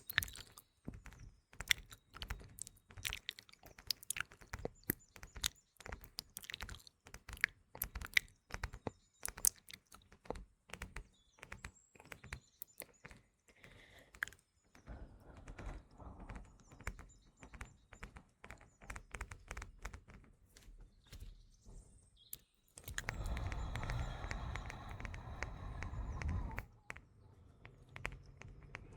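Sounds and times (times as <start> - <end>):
wet mouth clicks: 0.0 - 0.7, 1.6 - 10.2, 12.0 - 14.4, 22.4 - 26.6
birds chirping: 0.0 - 28.9.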